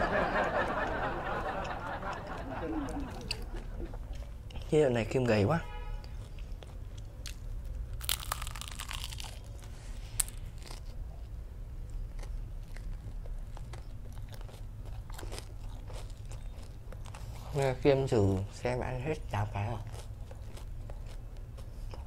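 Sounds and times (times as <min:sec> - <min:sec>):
chewing with crunches: 0:02.2 - 0:04.8, 0:06.0 - 0:22.0
crunchy bite into fried food: 0:06.6 - 0:11.1.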